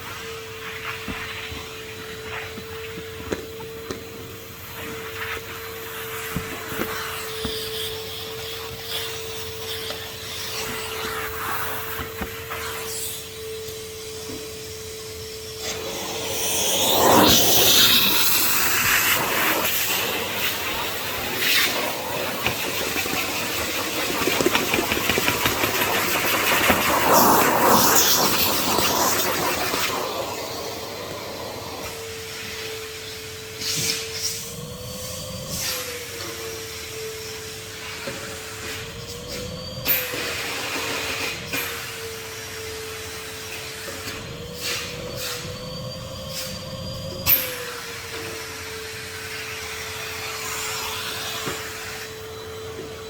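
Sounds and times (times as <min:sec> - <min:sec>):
vacuum cleaner running: 0:00.0 - 0:53.0
vacuum nozzle knocking: 0:15.8 - 0:30.8.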